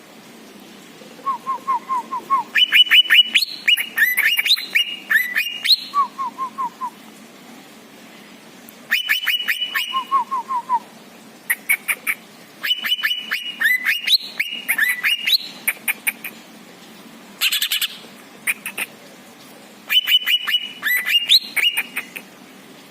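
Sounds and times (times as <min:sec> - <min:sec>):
songbird whistling song: 0:01.2 - 0:07.0, 0:08.9 - 0:10.9, 0:11.5 - 0:16.2, 0:19.9 - 0:22.2.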